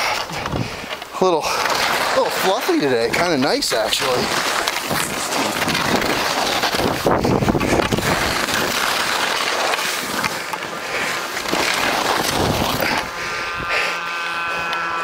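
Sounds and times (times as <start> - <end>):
skis scraping over snow: 0.0 - 15.0
wind rushing over microphone: 0.3 - 0.9, 4.1 - 8.8, 12.0 - 14.7.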